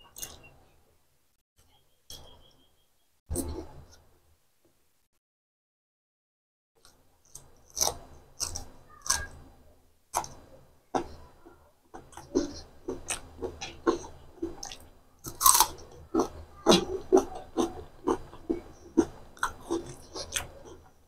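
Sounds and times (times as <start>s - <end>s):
crunchy chewing: 0.0s - 0.5s, 6.8s - 9.5s, 10.1s - 21.0s.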